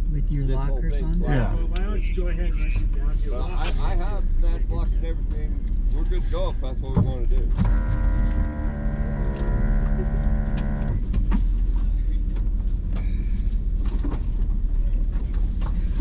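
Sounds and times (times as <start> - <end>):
car engine idling: 0.0 - 16.0
electric motor whining: 7.6 - 11.0.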